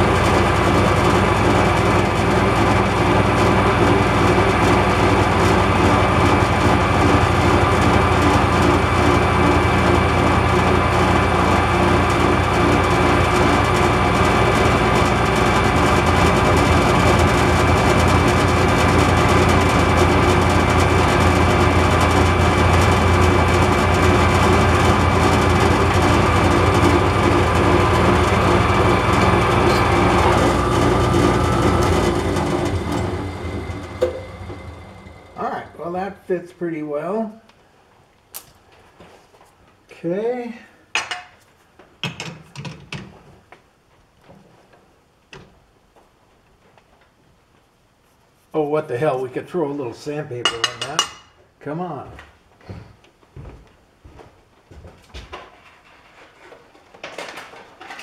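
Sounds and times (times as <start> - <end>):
power tool whining: 0.0 - 36.2.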